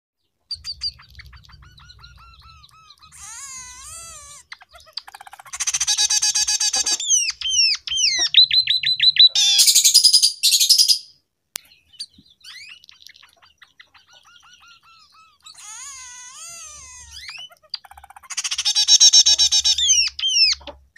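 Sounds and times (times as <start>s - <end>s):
bird singing whistled trills: 0.5s - 15.6s.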